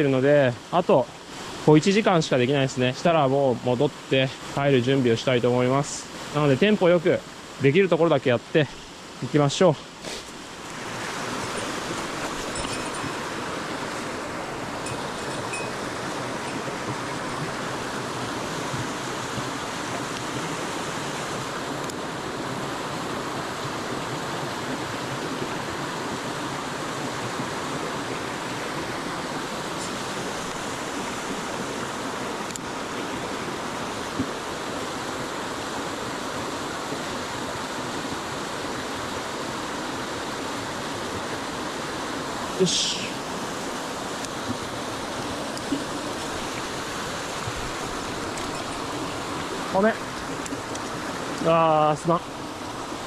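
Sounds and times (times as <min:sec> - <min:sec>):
stream rushing over rocks: 0:00.0 - 0:53.0.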